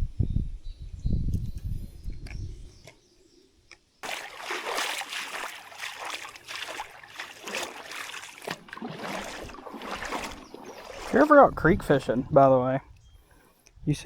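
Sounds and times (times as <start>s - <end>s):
creek water splashing: 4.0s - 12.7s.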